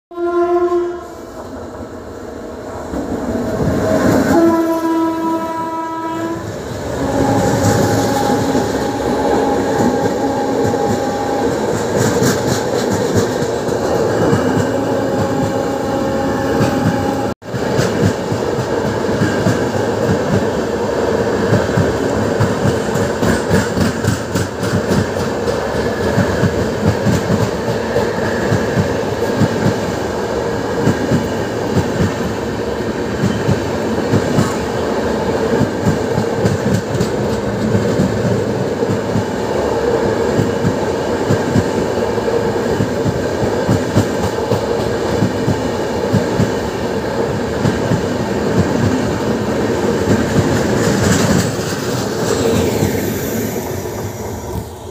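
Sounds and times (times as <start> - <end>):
wheels rumbling on rail: 0.2 - 54.9
clickety-clack over rail joints: 9.7 - 15.6, 16.6 - 20.6, 21.4 - 29.9, 33.2 - 34.8, 35.4 - 39.4, 42.6 - 46.6, 47.4 - 52.9.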